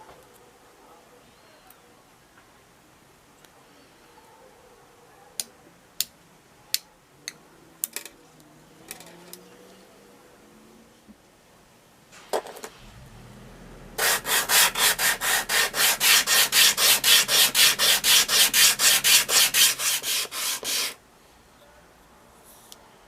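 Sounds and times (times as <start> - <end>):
sandpaper rubbing on wood: 14.0 - 21.0.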